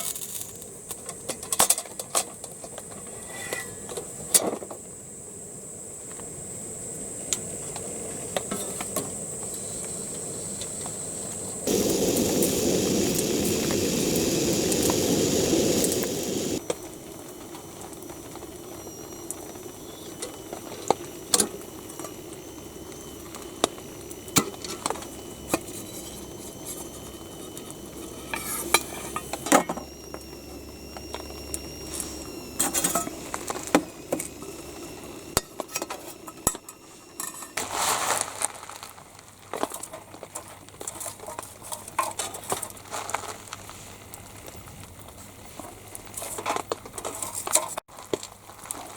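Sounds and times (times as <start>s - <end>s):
loud steady hiss: 9.2s - 38.5s.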